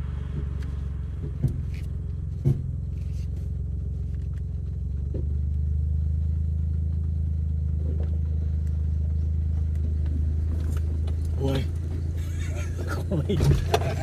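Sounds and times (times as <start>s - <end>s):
car engine and road drone: 0.0s - 14.0s.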